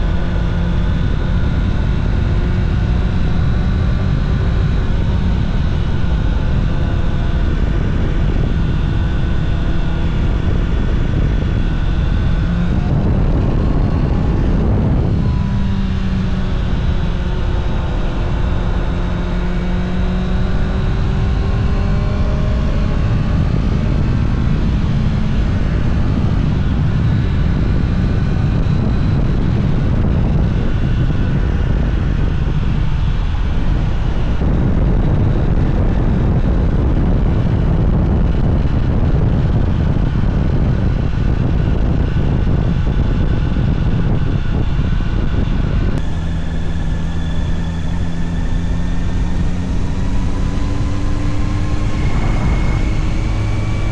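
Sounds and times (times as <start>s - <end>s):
motorcycle engine running: 0.0s - 26.7s, 46.0s - 53.9s
rush of noise: 0.0s - 27.3s, 46.0s - 53.9s.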